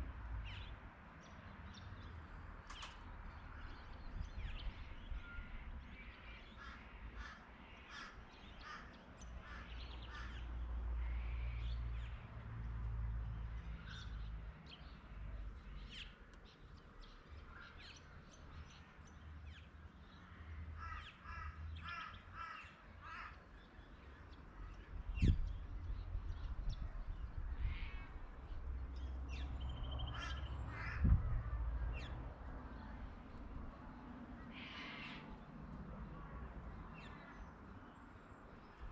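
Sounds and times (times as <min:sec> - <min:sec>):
birds calling: 0:28.9 - 0:32.9.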